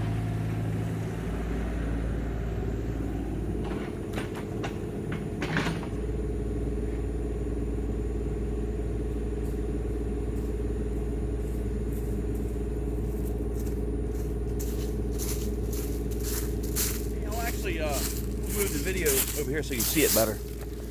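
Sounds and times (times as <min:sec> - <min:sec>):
distant diesel engine drone: 0:00.0 - 0:20.9.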